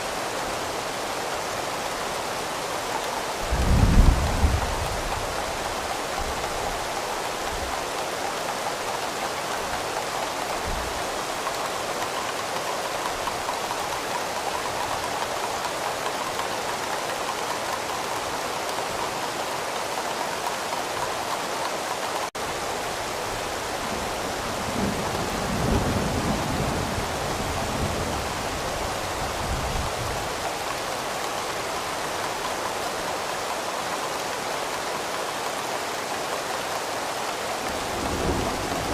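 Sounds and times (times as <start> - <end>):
steady rain falling: 0.0 - 38.9
distant thunder rumbling: 3.4 - 5.7.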